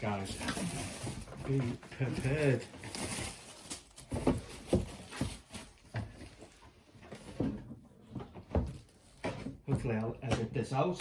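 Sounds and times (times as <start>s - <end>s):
cardboard box knocks and scuffs: 4.0s - 6.2s.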